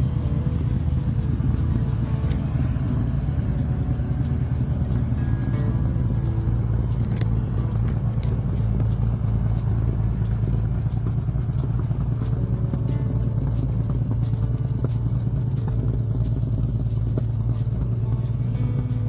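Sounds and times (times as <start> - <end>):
car engine idling low rumble: 0.0 - 19.0.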